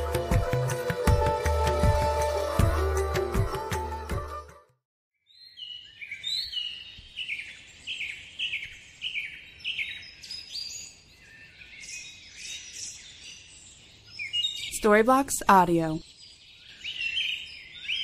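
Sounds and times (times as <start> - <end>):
birds chirping: 5.4 - 18.0.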